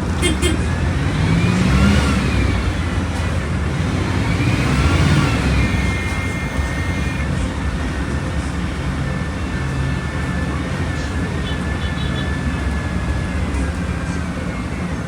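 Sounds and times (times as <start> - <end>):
bus diesel engine rumble: 0.0 - 15.0
engine whine rising and falling: 0.8 - 11.1.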